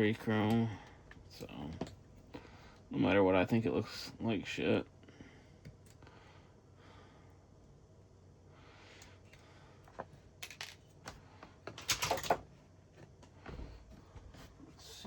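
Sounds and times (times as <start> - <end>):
plastic parts clicking and clattering: 9.3 - 12.5.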